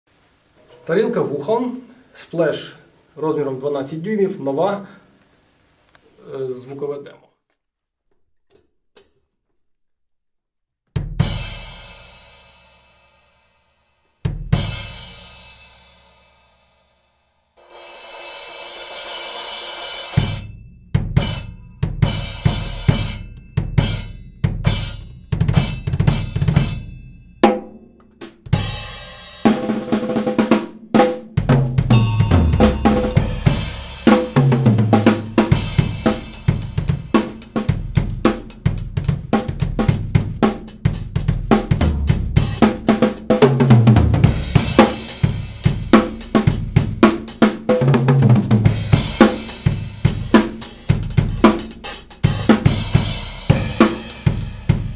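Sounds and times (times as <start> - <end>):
snare and bass drum groove: 11.0 - 12.4, 14.3 - 15.8, 18.8 - 54.9
splash cymbal strikes: 17.6 - 27.3, 31.9 - 37.8, 44.3 - 47.4, 48.8 - 54.9
tom fills: 29.4 - 40.3, 41.0 - 47.1.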